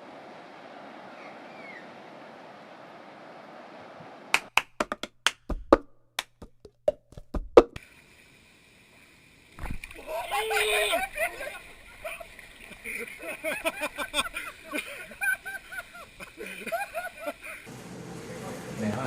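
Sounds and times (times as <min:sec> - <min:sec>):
sharp irregular knocks: 0:04.4 - 0:07.8.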